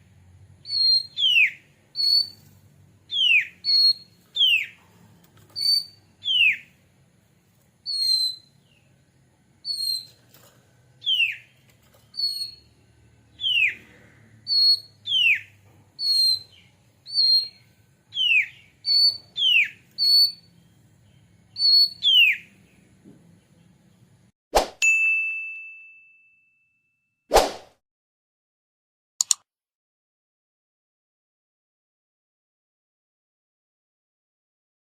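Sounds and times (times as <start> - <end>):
bird singing whistled phrase: 0.6 - 2.4, 5.6 - 6.7, 7.9 - 8.5, 9.6 - 10.1, 13.4 - 13.8, 14.5 - 20.4, 21.6 - 22.5.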